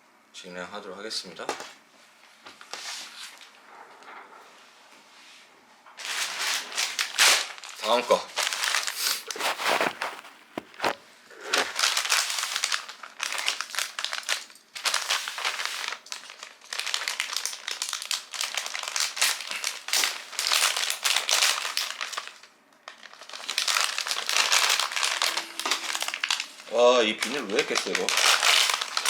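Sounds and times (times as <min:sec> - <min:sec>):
plastic bag crinkling: 0:06.0 - 0:29.0.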